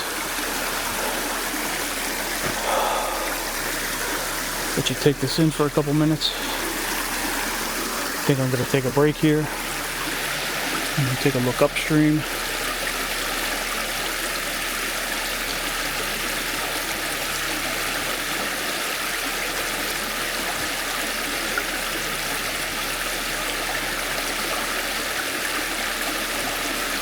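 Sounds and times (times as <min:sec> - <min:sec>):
creek running: 0:00.0 - 0:27.0.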